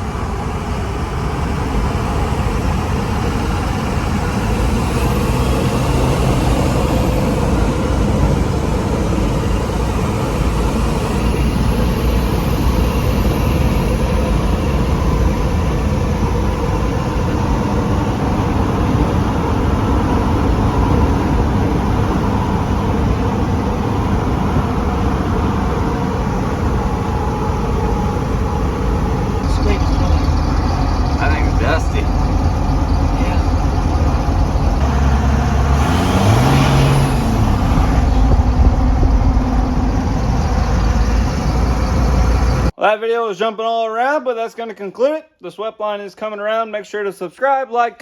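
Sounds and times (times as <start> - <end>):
pickup truck engine and exhaust: 0.0 - 42.7
road noise: 0.0 - 42.8.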